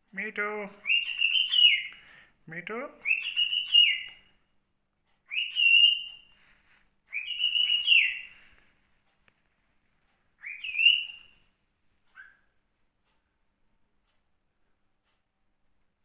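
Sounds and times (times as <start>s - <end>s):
cockatiel whistling: 0.8s - 2.0s, 3.0s - 4.3s, 5.3s - 8.5s, 10.4s - 11.5s, 12.1s - 12.5s.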